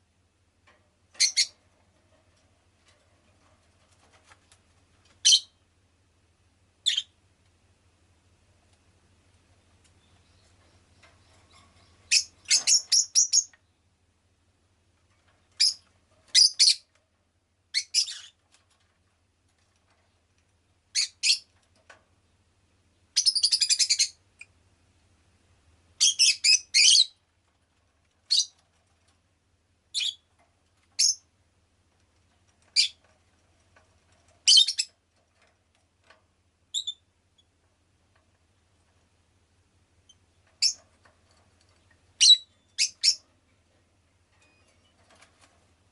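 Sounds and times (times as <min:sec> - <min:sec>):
lovebird shrill chirps: 0:06.8 - 0:07.1, 0:12.1 - 0:13.5, 0:42.2 - 0:43.2.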